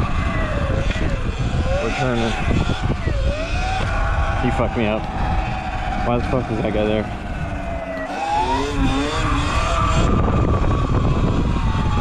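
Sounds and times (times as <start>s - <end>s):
motorcycle engine accelerating: 0.0s - 12.0s
wind noise on microphone: 0.0s - 12.0s.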